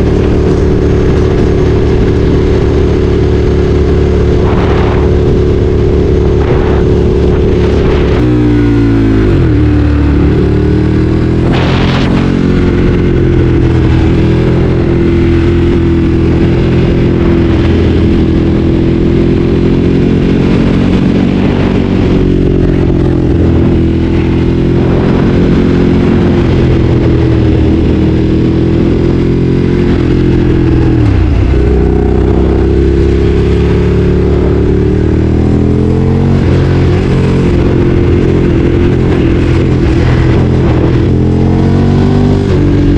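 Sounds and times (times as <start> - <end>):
motorcycle engine while ridden: 0.0 - 42.9.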